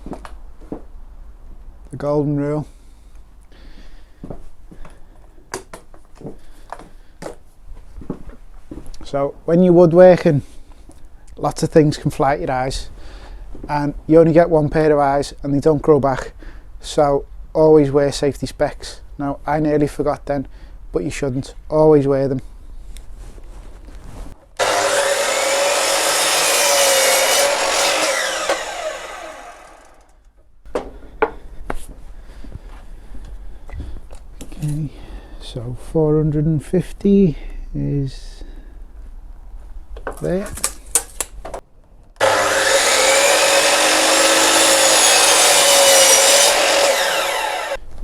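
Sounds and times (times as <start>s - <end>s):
mitre saw cutting wood: 24.6s - 30.1s, 42.2s - 47.8s.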